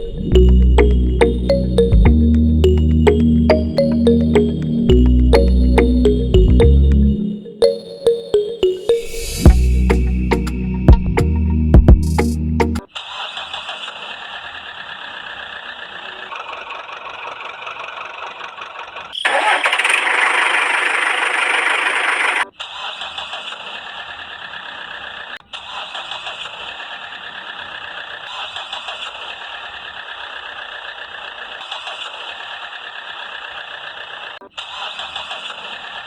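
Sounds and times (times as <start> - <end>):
buzzing engine running: 16.2 - 22.5.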